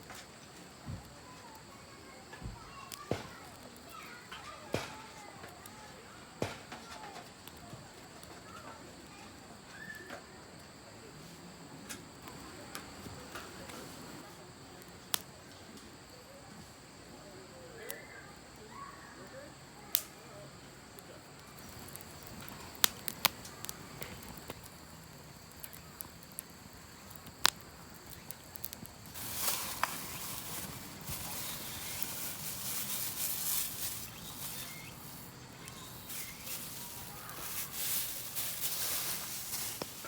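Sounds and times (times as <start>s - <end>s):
insects chirring: 0.0s - 40.0s
scratchy rustling: 29.0s - 40.0s.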